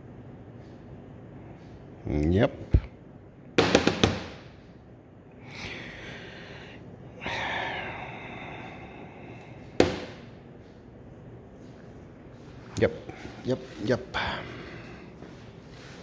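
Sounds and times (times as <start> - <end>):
sharp knocks: 9.8 - 10.3.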